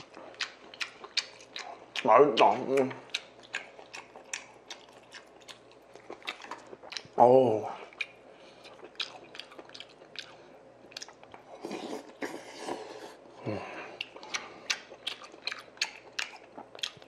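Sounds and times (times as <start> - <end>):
person chewing with wet smacks: 0.0 - 13.2, 13.8 - 17.0
person slurping: 11.6 - 14.8
hum-like vocal sound: 12.3 - 14.0.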